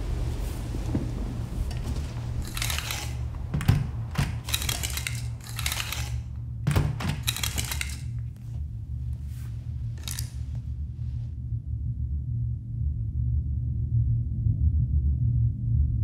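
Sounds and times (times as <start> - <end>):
curtain fabric swishing: 0.0 - 6.4, 7.1 - 11.2
low hum: 0.0 - 16.0
curtain runners rattling: 1.0 - 8.6, 9.2 - 10.6.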